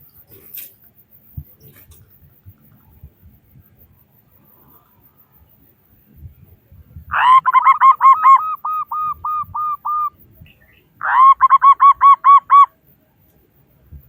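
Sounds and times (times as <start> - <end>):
dove cooing: 7.1 - 10.2, 11.0 - 12.7.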